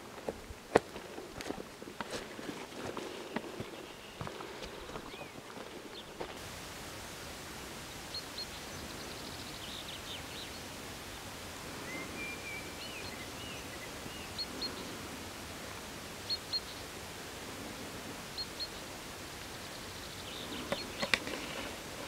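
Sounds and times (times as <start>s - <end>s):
steady hiss: 0.0s - 22.0s
small birds chirping: 2.0s - 6.4s, 7.8s - 15.2s, 16.1s - 17.1s, 18.0s - 22.0s.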